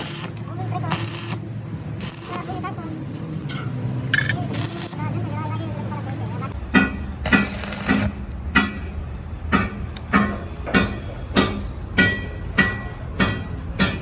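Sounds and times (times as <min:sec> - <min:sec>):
hammer striking steel: 0:00.0 - 0:01.4, 0:02.0 - 0:02.5, 0:03.4 - 0:05.0.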